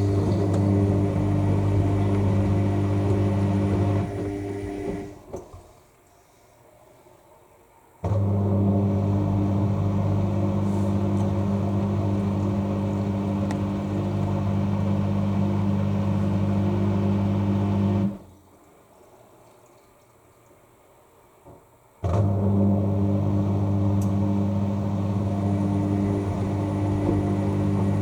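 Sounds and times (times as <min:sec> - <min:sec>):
washing machine drain pump humming: 0:00.0 - 0:05.4, 0:08.0 - 0:18.3, 0:22.0 - 0:28.0.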